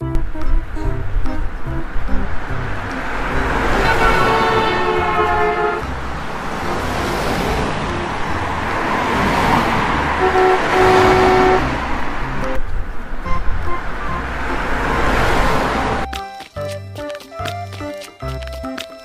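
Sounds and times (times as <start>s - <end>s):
car horn toots: 3.6s - 6.0s, 10.1s - 12.0s.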